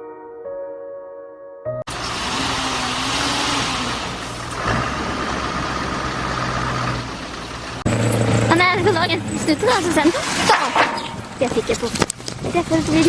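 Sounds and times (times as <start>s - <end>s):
vehicle engine running: 1.9s - 10.4s, 11.1s - 13.0s.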